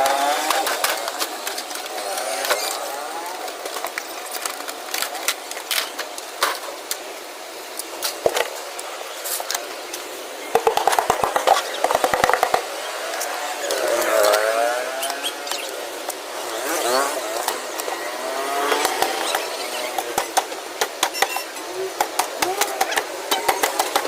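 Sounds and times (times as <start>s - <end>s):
clicks and knocks: 10.5s - 12.7s.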